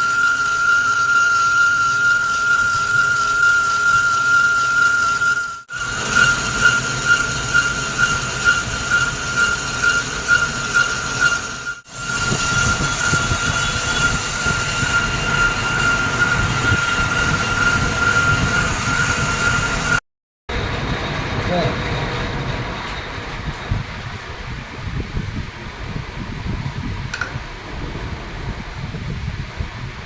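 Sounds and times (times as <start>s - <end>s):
metal lathe cutting whine: 0.0s - 24.0s.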